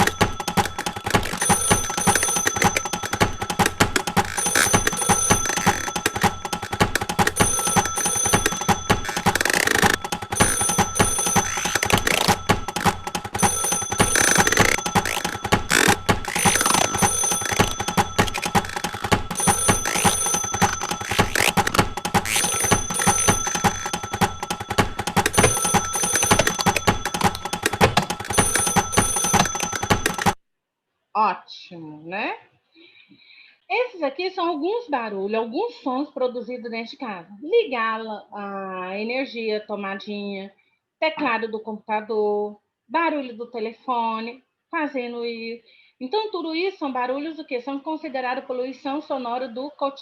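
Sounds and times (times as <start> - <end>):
bell-like ringing tones: 0.0 - 30.4
rapid regular clicking: 0.0 - 30.4.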